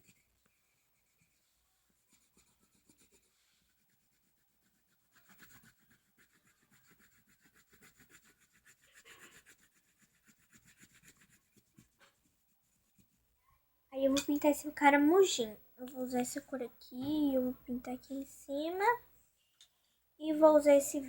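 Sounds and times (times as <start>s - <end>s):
colouring strokes on paper: 0.0s - 13.3s.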